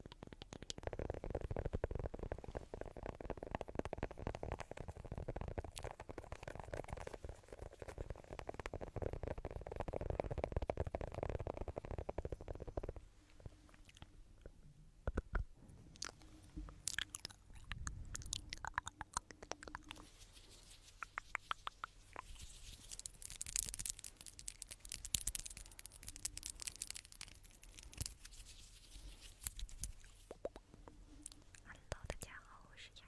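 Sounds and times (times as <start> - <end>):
scratchy rubbing: 0.4 - 13.0, 19.5 - 30.4.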